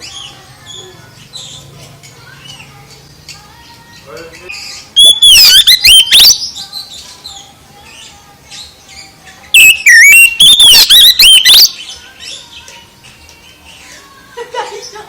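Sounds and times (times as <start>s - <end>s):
soft bird twitters: 4.0s - 14.0s
bird singing whistled phrases: 4.4s - 12.5s.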